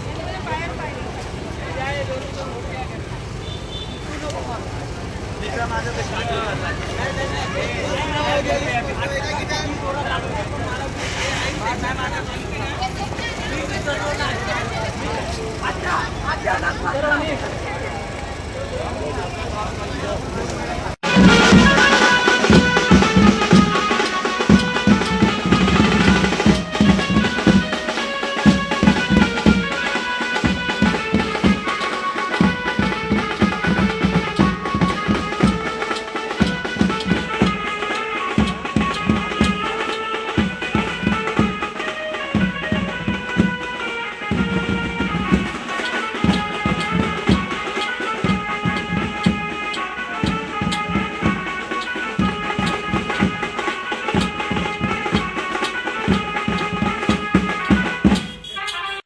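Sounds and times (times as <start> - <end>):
stepping melody line: 3.2 - 59.0
hand drum beats: 21.0 - 41.7, 44.3 - 58.4.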